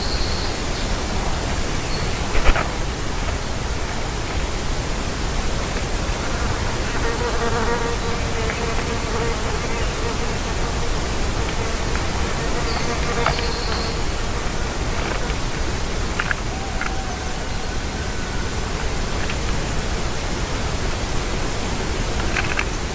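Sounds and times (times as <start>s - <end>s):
outdoor hiss: 0.0s - 22.9s
flying insect buzzing: 6.1s - 16.2s.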